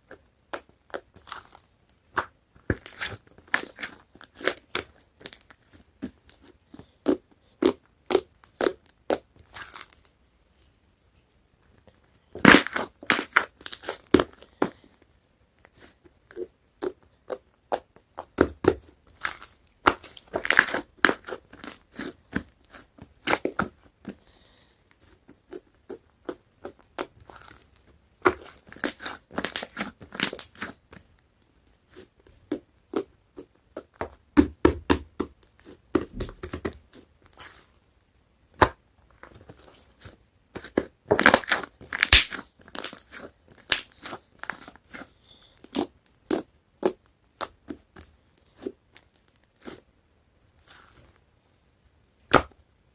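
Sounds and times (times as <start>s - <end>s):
slime crackling and popping: 12.4s - 14.4s, 41.1s - 44.8s.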